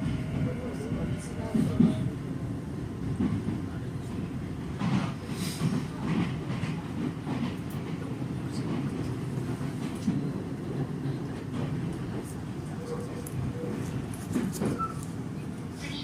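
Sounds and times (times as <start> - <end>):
train wheels rumbling on rail: 0.0 - 16.0
knocks and clatter over track: 3.0 - 15.0.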